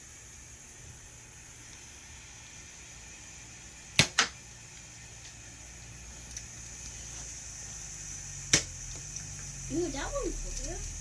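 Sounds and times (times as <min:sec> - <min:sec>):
faint hiss: 0:00.0 - 0:11.0
foam dart blaster clacks: 0:04.0 - 0:04.4, 0:08.5 - 0:09.4.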